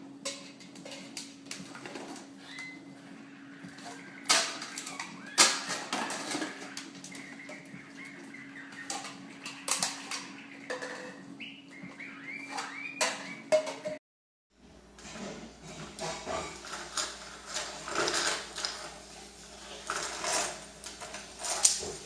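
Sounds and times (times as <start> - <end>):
parrot chirping: 2.4 - 13.6.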